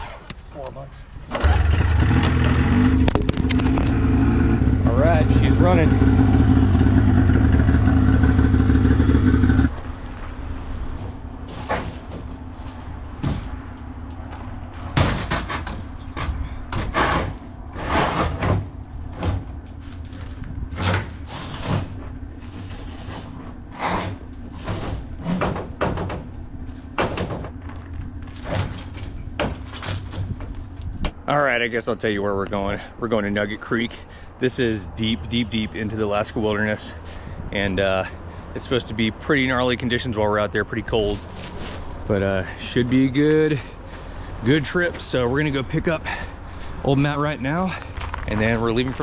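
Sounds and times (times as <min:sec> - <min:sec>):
diesel truck engine running: 0:01.4 - 0:31.3
knocks and clunks: 0:10.9 - 0:31.3.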